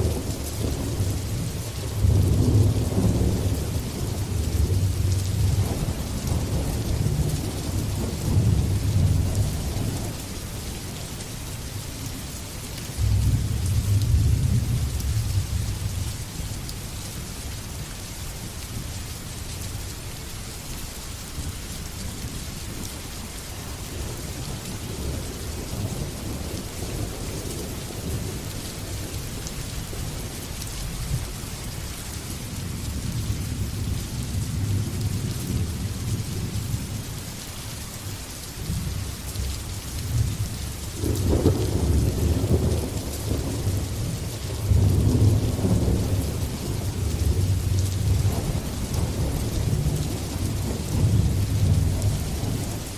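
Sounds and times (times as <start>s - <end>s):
rolling thunder: 0.0s - 10.2s, 13.0s - 16.0s, 40.1s - 52.9s
heavy rain: 0.0s - 52.9s.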